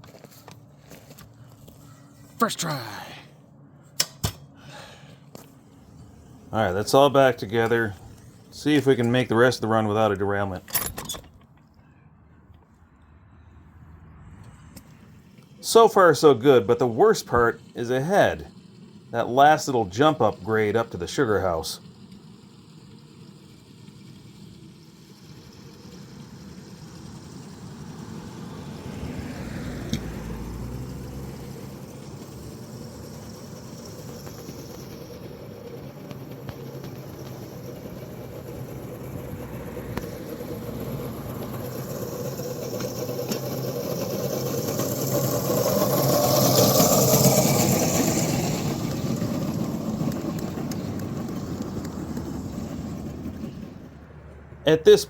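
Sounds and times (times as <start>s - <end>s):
electric motor straining: 15.8s - 53.8s.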